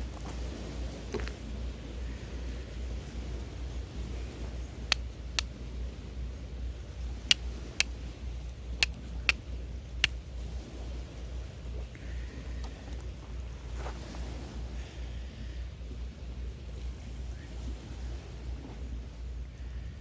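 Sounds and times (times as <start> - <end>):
steady low rumble: 0.0 - 20.0
sharp clicks of hard objects: 7.3 - 8.1.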